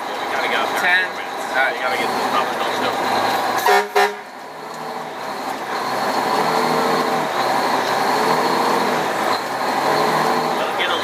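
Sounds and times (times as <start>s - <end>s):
fire engine running: 0.0s - 11.0s
fire engine horn blasts: 3.6s - 4.4s.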